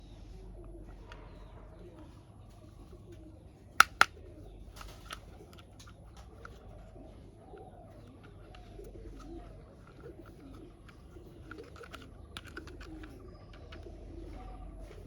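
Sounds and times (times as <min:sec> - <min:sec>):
bird cooing faintly: 0:00.0 - 0:15.0
sharp clicks: 0:03.8 - 0:06.7, 0:07.6 - 0:13.9.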